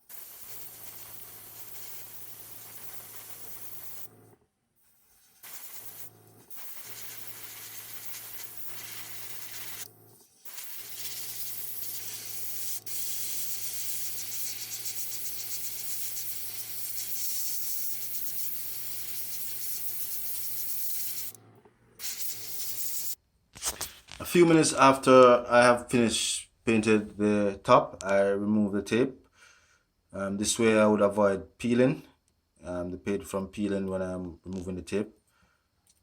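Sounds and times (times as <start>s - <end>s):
spray paint hissing: 0.0s - 21.4s, 22.0s - 23.2s.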